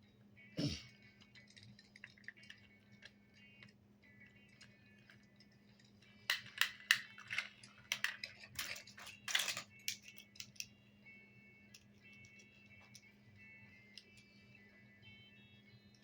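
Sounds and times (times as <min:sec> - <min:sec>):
plastic toys clattering: 0:01.1 - 0:10.7.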